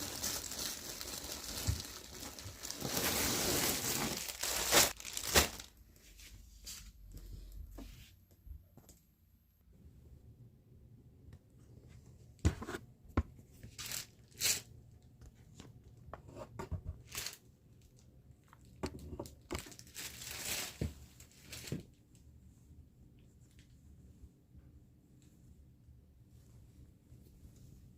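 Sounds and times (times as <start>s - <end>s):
plastic packaging tearing: 0.0s - 5.7s, 19.6s - 20.8s
plastic packaging crinkling: 0.0s - 5.8s, 13.8s - 14.6s, 19.2s - 21.8s.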